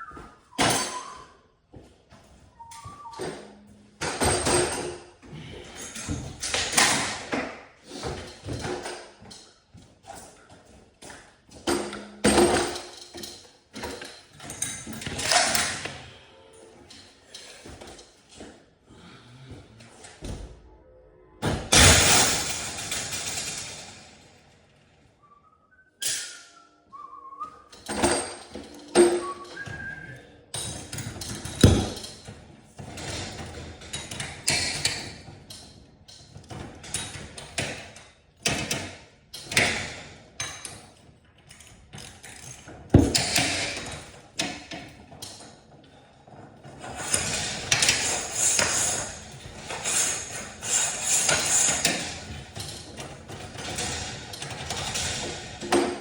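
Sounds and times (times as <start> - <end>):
metal tools knocking and clanking: 0.0 - 1.2, 27.7 - 40.9.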